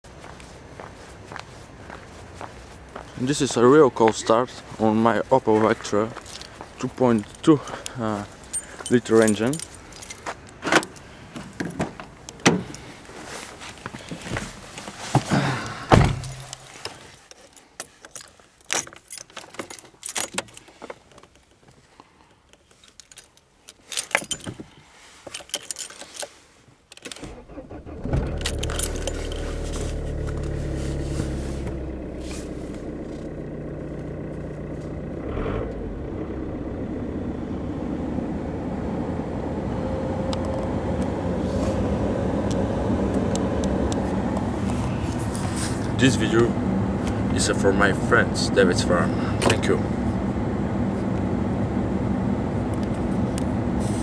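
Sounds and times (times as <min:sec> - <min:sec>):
keys jangling: 0:08.4 - 0:10.6, 0:16.2 - 0:20.7, 0:22.6 - 0:24.6, 0:25.3 - 0:26.3, 0:28.4 - 0:30.4
car engine starting and idling: 0:27.2 - 0:54.0.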